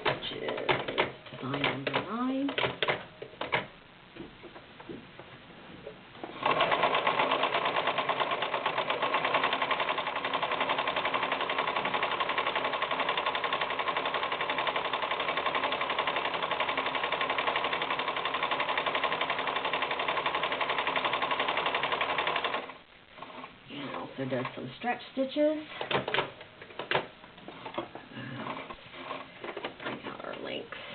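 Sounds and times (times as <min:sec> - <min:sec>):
sewing machine stitching: 0:06.3 - 0:24.7.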